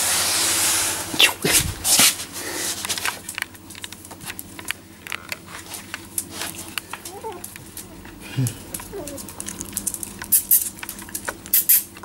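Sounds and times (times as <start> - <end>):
puppy crying: 7.0 - 8.0, 8.7 - 9.5.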